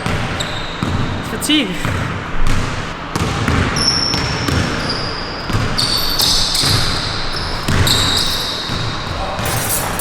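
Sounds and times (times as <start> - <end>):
basketball bouncing on hardwood: 0.0 - 1.2, 1.8 - 4.8, 5.5 - 7.0, 7.6 - 9.2
sneaker soles squeaking: 0.0 - 1.2, 3.7 - 10.0.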